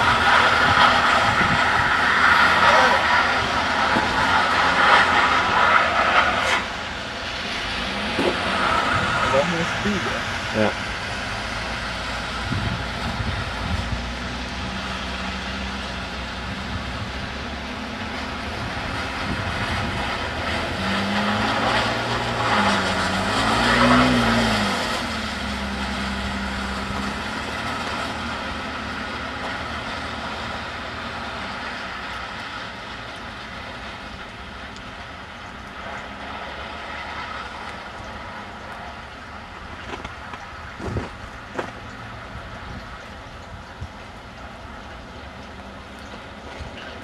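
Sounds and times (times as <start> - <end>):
car engine revving: 0.0 - 32.7.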